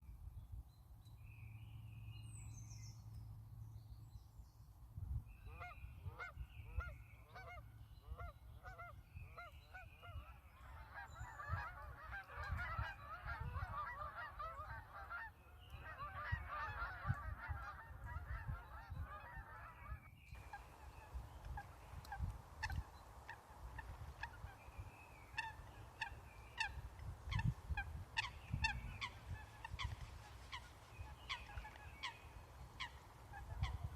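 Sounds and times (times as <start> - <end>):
geese honking: 10.7 - 33.9
low wind rumble: 20.4 - 33.9.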